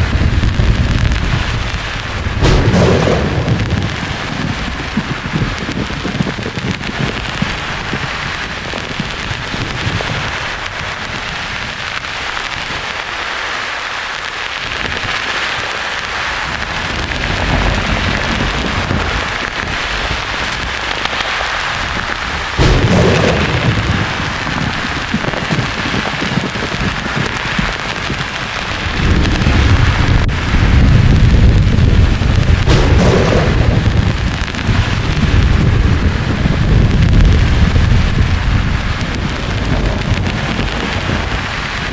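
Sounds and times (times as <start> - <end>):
thunder rolling: 0.0 - 11.8, 16.3 - 41.9.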